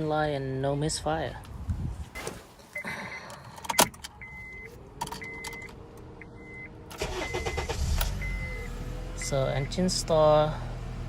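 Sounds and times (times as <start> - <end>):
car dashboard chime beeping: 2.2 - 9.8
car engine cranking and starting: 3.6 - 11.0.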